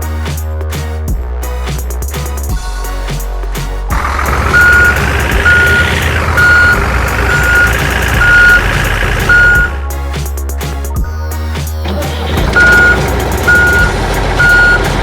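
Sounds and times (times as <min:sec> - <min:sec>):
truck engine: 0:03.9 - 0:09.8, 0:11.9 - 0:15.0
truck reversing alarm beeping: 0:04.0 - 0:09.8, 0:12.5 - 0:15.0.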